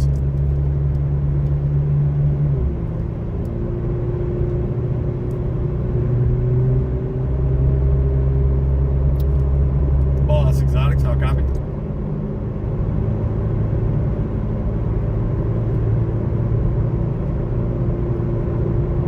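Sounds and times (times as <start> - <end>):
car engine drone inside cabin: 0.0 - 19.0.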